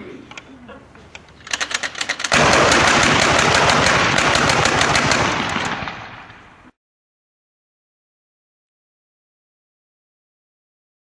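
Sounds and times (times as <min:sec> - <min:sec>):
gatling gun firing rapidly: 0:01.5 - 0:06.3.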